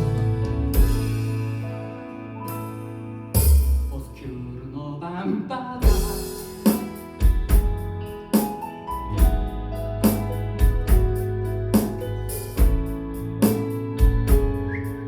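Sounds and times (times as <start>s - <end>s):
drum hits: 0.0s - 1.5s, 5.8s - 8.6s, 9.2s - 14.7s
keyboard chords: 0.0s - 4.2s, 5.8s - 15.0s
sustained bass: 0.0s - 4.9s, 5.8s - 15.0s.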